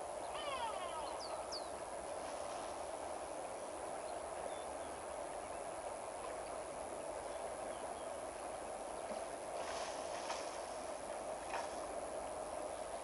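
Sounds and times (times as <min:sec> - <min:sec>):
faint bird chirps: 0:00.2 - 0:01.8.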